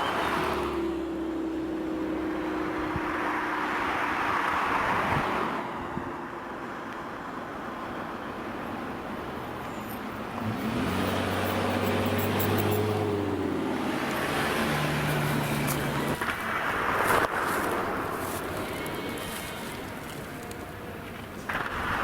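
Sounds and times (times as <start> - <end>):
vehicle engines running: 6.6 - 22.0
vehicle accelerating: 9.9 - 20.8.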